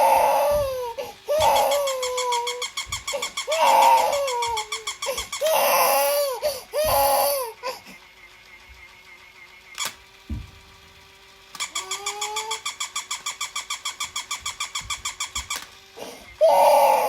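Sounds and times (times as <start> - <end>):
baby crying: 0.0 - 7.9, 16.0 - 17.0.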